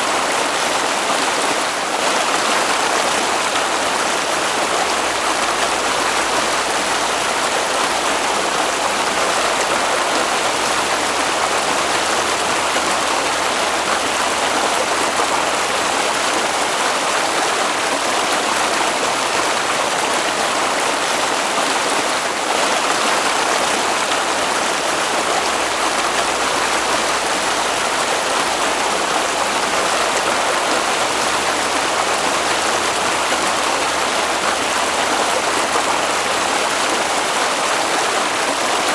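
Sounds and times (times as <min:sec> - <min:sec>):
water rushing: 0:00.0 - 0:38.9.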